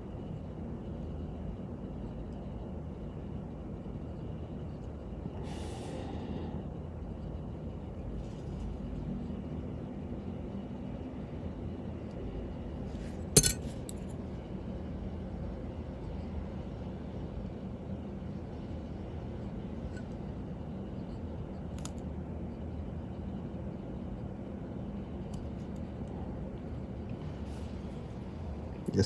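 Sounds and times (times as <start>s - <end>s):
sharp metallic click: 13.4s - 14.1s.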